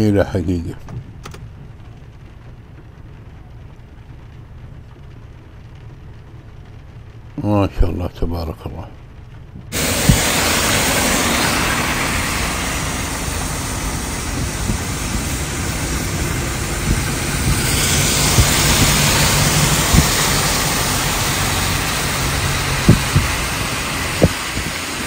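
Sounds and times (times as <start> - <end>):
rain and tyre spray hiss: 0.0 - 25.0
low engine hum: 8.9 - 25.0
sharp knocks: 22.8 - 23.4.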